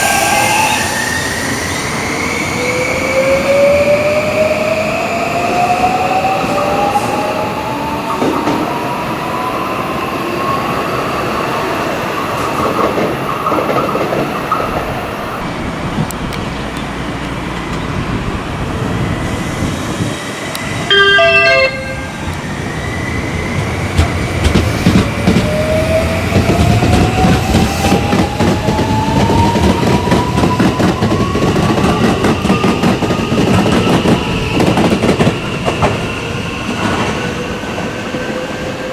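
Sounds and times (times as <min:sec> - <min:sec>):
wheels rumbling on rail: 0:11.4 - 0:38.9
loud horn-like tone: 0:20.9 - 0:22.4.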